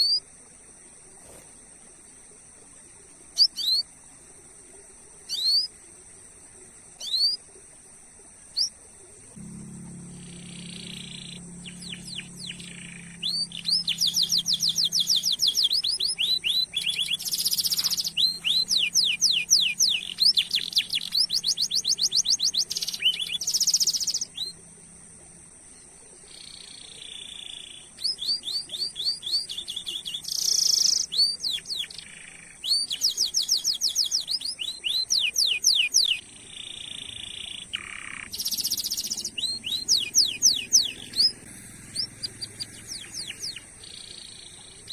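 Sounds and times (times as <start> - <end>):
canary singing: 8.6 - 24.9, 26.2 - 44.9
steady high tone: 9.4 - 15.4.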